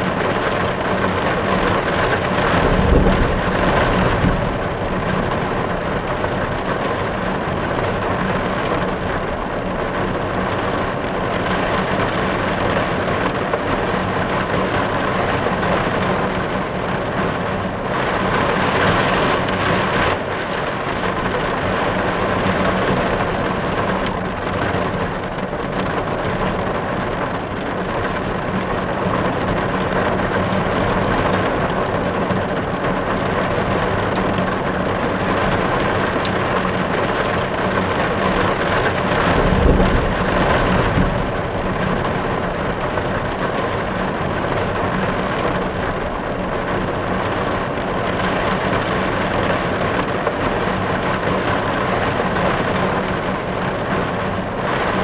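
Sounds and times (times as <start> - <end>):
rain drumming on car roof: 0.0 - 55.0
low rumble: 2.2 - 6.7, 39.0 - 44.5.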